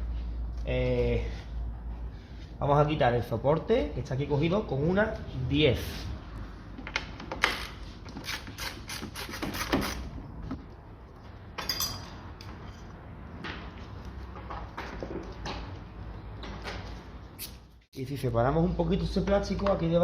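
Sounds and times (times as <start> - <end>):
ratchet wrench clicking: 7.4 - 10.0.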